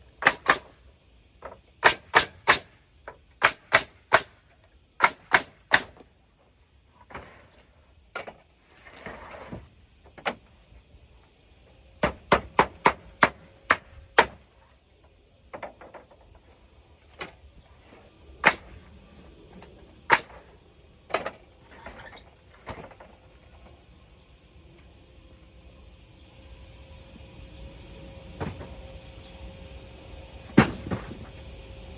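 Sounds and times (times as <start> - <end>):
hammer striking wood: 0.2 - 0.7, 1.8 - 2.7, 3.4 - 4.4, 5.0 - 6.0.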